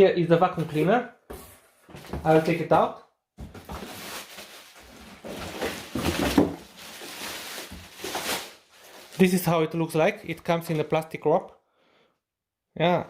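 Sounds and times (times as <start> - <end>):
plastic wrapping crinkling: 3.4 - 9.6.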